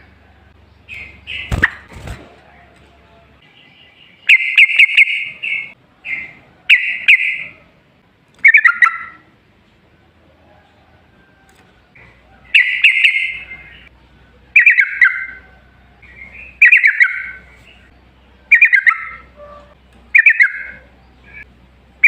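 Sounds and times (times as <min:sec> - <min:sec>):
bird singing bubbly phrases: 0:08.4 - 0:09.2, 0:14.5 - 0:15.4, 0:16.0 - 0:19.3, 0:20.1 - 0:21.5.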